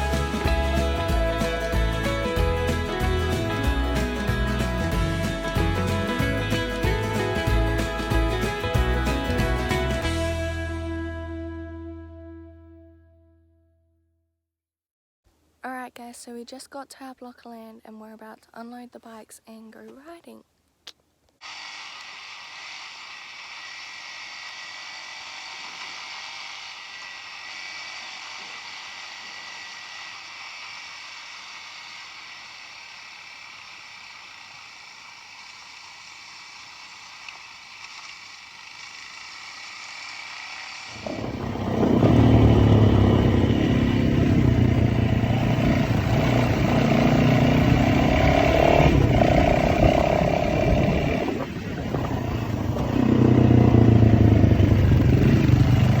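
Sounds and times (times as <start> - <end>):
motorbike engine running: 0.0 - 10.8, 40.9 - 56.0.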